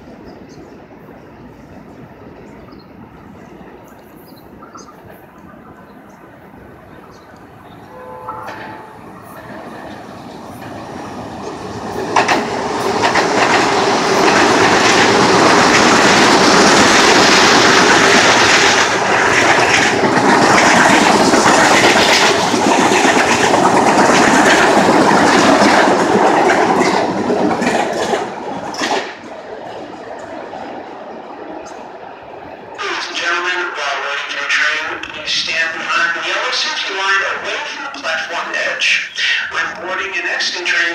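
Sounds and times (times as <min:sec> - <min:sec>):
train passing: 0:00.0 - 0:40.9
wheels clacking over rail joints: 0:07.3 - 0:30.4.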